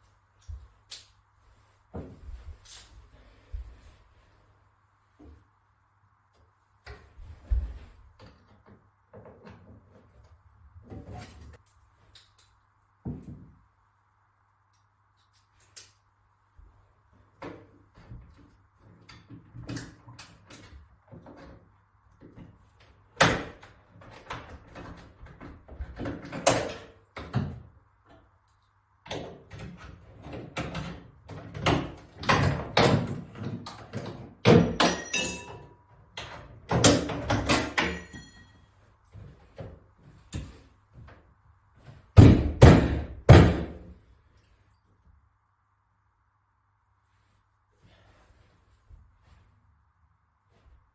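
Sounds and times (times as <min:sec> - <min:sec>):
renovation knocks and clatters: 0:17.3 - 0:28.2, 0:29.0 - 0:43.9.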